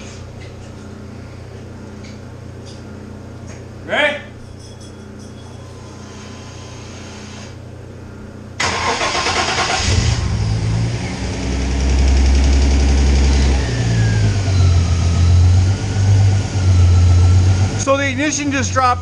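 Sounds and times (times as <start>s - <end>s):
car engine cranking and running: 8.6s - 18.8s.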